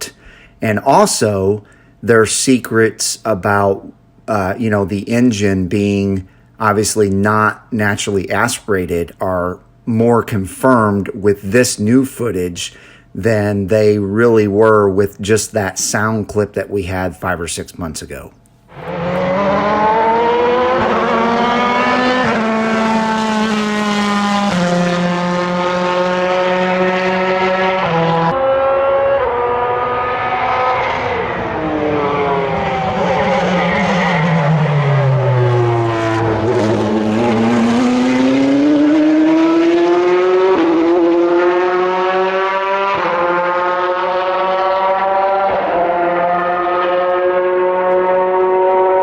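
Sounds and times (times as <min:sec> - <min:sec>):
race car engine at full throttle: 0:18.7 - 0:49.0.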